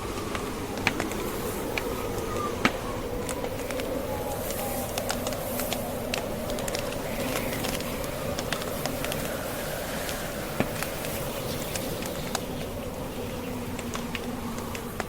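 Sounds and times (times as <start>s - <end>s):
howling blizzard wind: 0.0s - 15.0s
wood fire crackling and popping: 0.0s - 15.0s.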